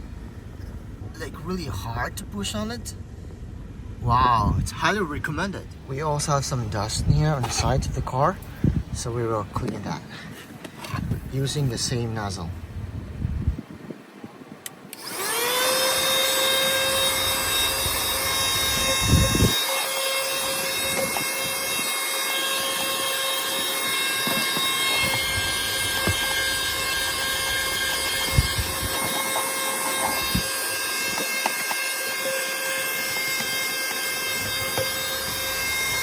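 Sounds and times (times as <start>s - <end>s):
handheld vacuum cleaner whining: 6.9s - 8.7s, 14.9s - 36.0s.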